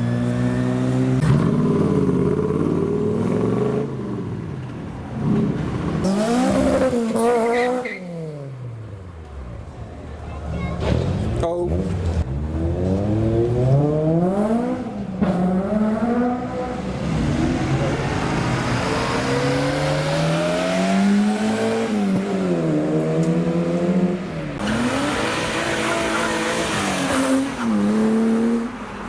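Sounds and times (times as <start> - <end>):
car engine revving: 5.2 - 8.4, 11.0 - 28.8.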